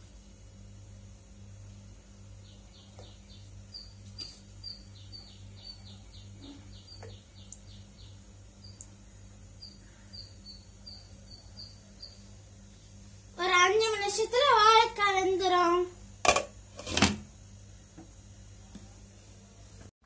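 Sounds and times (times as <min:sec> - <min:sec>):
steady low hum: 0:00.0 - 0:19.9
small birds chirping: 0:02.3 - 0:12.4.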